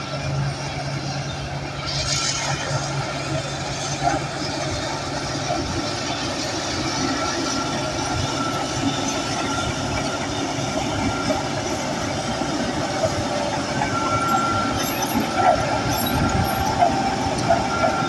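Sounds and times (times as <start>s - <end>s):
diesel engine under load: 0.0s - 18.0s.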